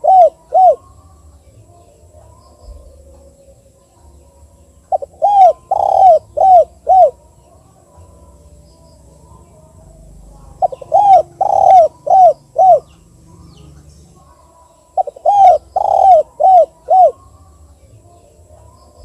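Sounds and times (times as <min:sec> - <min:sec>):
dove cooing: 0:00.0 - 0:01.0, 0:04.9 - 0:07.3, 0:09.8 - 0:17.4.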